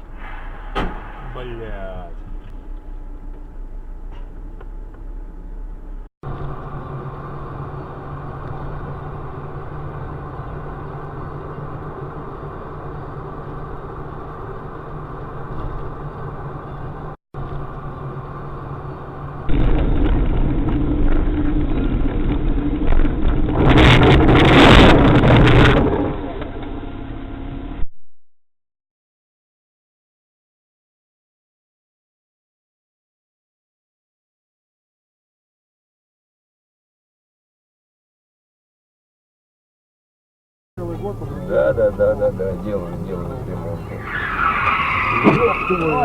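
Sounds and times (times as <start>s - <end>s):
harsh noise burst: 0.0s - 2.7s
car engine and road noise: 0.0s - 27.8s, 40.8s - 46.0s.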